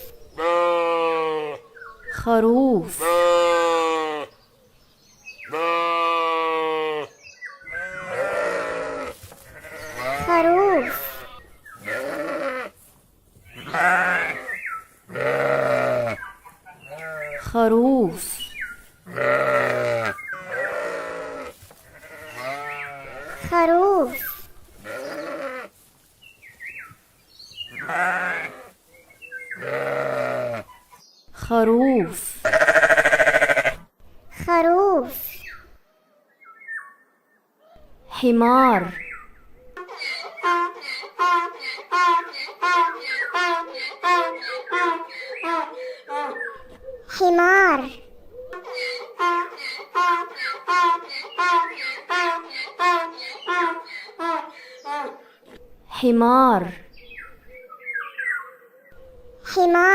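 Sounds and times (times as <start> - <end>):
sheep bleating: 0.4 - 1.6, 3.0 - 4.3, 5.4 - 12.8, 13.5 - 17.5, 19.1 - 23.6, 24.8 - 25.7, 27.7 - 28.8, 29.5 - 30.7, 32.4 - 33.9.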